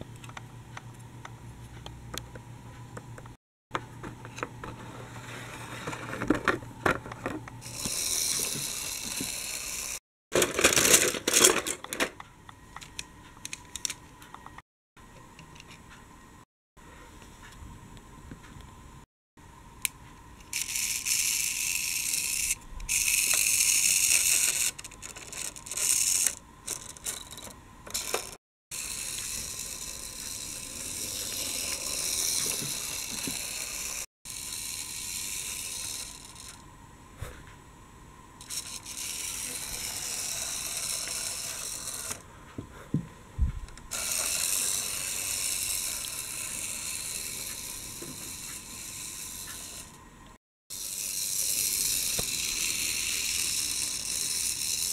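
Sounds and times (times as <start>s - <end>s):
toy gear mechanism whirring: 7.6s - 12.1s, 19.8s - 36.6s, 38.4s - 42.3s, 43.9s - 50.0s, 50.7s - 54.9s.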